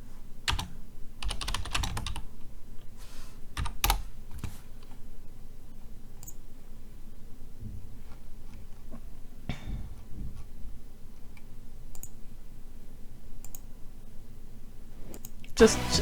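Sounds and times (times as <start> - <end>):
typing on computer keyboard: 0.5 - 2.3, 3.6 - 4.6.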